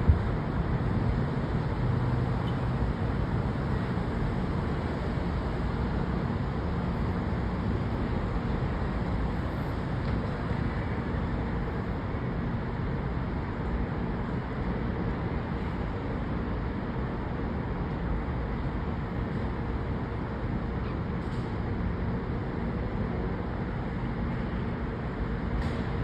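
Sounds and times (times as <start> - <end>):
city traffic noise: 0.0 - 26.0.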